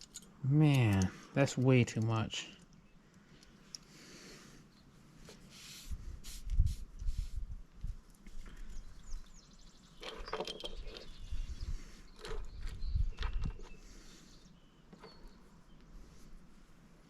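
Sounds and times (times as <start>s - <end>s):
small metal parts clattering: 10.0s - 11.2s.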